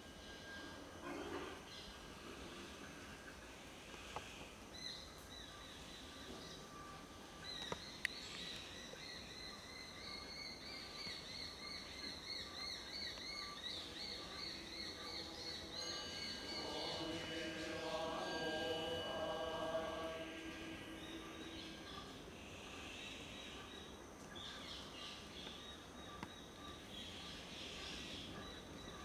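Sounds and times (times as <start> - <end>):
steady high tones: 13.8 - 22.9.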